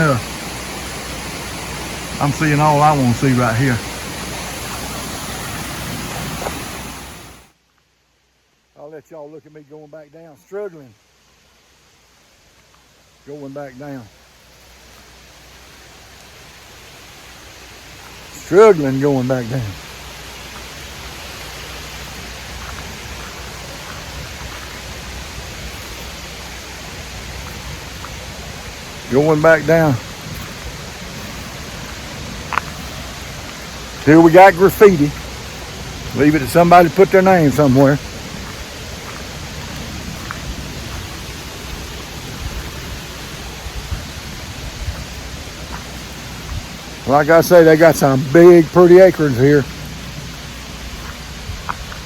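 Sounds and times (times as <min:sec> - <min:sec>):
waterfall rushing: 0:00.0 - 0:07.5, 0:12.1 - 0:52.0.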